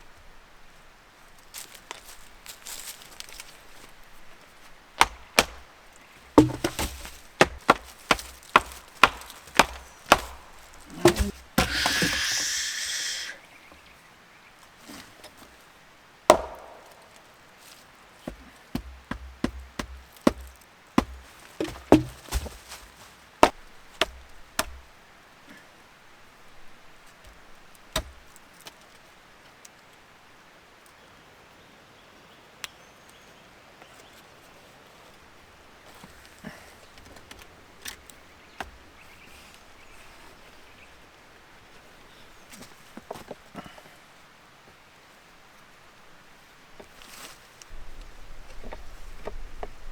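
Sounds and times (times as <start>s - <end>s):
faint steady hiss: 0.0s - 49.9s
wood being chopped: 5.0s - 12.6s, 16.3s - 17.3s, 18.3s - 24.9s, 27.3s - 28.4s.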